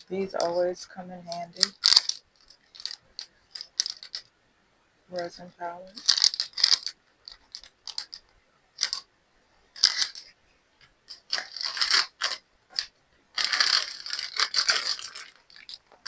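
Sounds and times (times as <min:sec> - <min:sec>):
plastic packaging crinkling: 0:01.3 - 0:04.3, 0:05.9 - 0:09.1, 0:09.7 - 0:10.3, 0:11.1 - 0:16.0.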